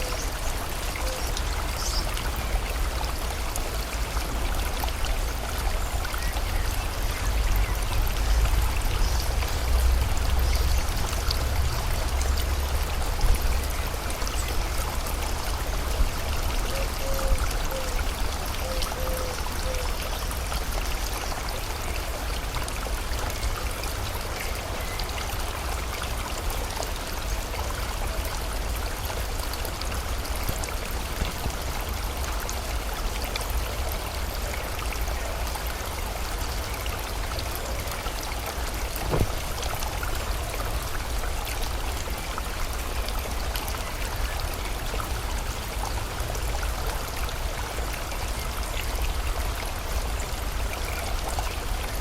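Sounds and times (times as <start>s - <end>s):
river water rushing: 0.0s - 52.0s
brief knock: 39.0s - 39.4s.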